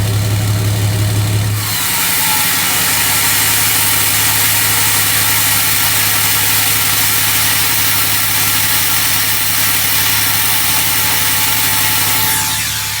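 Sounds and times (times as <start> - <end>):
diesel truck engine idling: 0.0 - 1.6.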